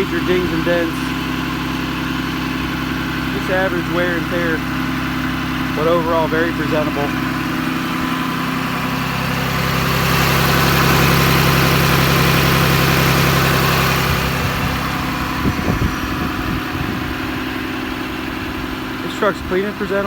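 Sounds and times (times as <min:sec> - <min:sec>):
diesel engine idling: 0:00.0 - 0:20.0
low thumps: 0:10.9 - 0:18.0.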